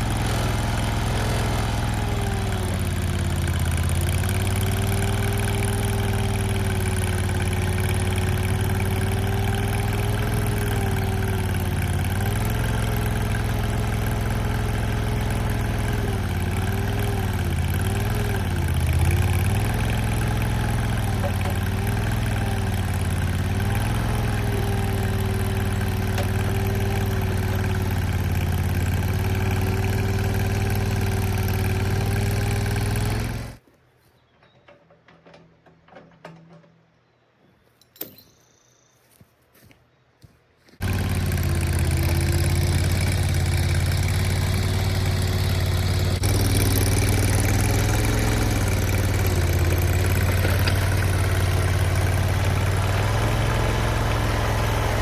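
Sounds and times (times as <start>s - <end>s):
skid steer engine running: 0.0s - 33.6s, 40.7s - 55.0s.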